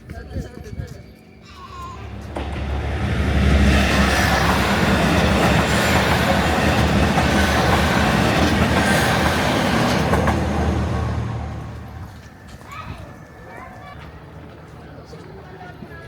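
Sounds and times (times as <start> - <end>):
train running on rails: 0.0 - 16.0.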